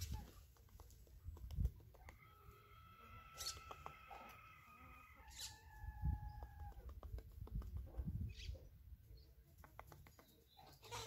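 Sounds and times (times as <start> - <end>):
bird pecking clicks and taps: 0.2 - 2.3, 6.3 - 8.1, 9.5 - 10.4.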